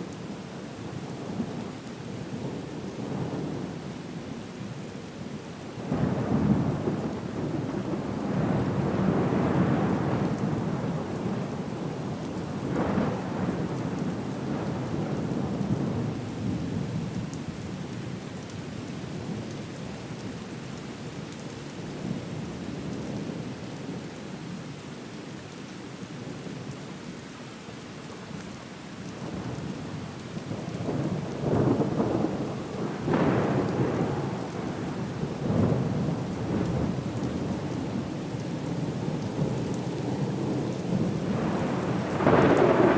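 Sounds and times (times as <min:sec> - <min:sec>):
rain falling: 0:00.0 - 0:42.9
rolling thunder: 0:30.5 - 0:38.1, 0:38.7 - 0:42.9.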